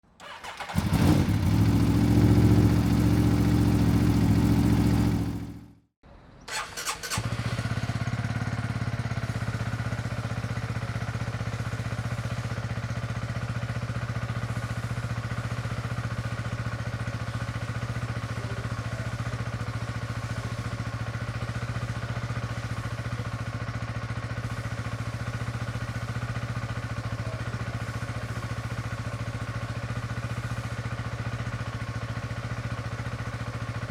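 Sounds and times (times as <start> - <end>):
motorcycle engine starting and idling: 0.1 - 33.9.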